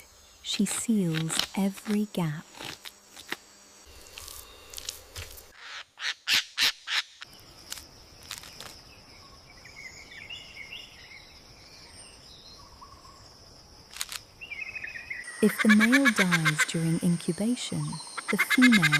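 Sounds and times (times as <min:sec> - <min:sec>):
birds chirping: 0:14.4 - 0:18.9.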